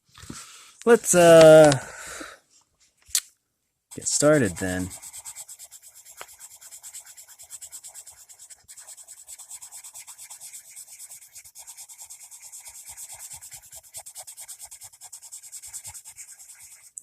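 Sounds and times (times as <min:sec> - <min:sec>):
pencil scribbling on paper: 0:03.9 - 0:17.0.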